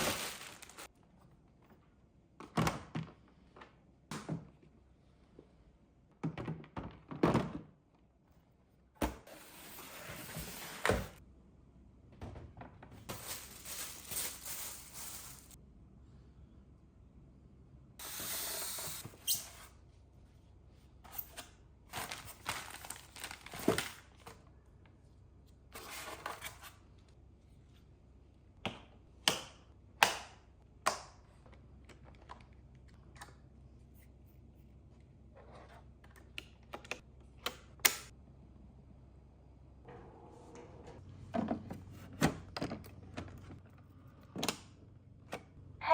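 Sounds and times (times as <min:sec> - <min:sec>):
plastic and paper rustling: 0:00.0 - 0:00.9, 0:13.0 - 0:15.6, 0:21.9 - 0:24.3.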